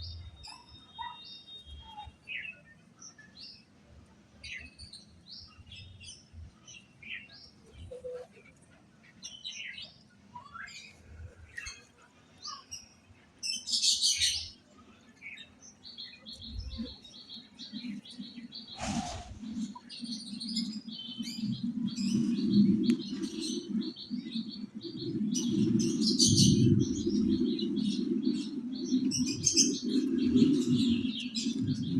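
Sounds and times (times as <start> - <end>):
small birds chirping: 0.0 - 31.9
brief whoosh: 18.8 - 19.5.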